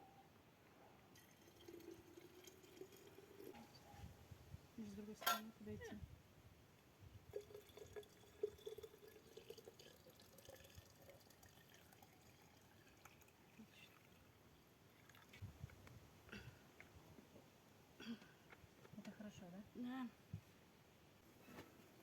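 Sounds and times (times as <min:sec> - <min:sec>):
syrup pouring into a jar: 0:01.1 - 0:03.6, 0:07.3 - 0:14.3.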